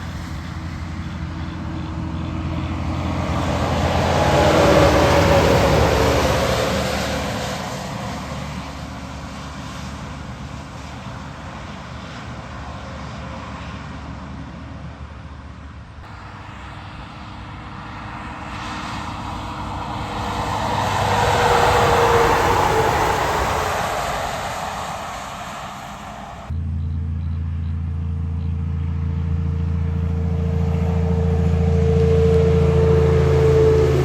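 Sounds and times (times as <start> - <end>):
tyres hissing on wet road: 0.0 - 13.6, 16.1 - 26.5
heavy trucks passing: 0.0 - 34.0.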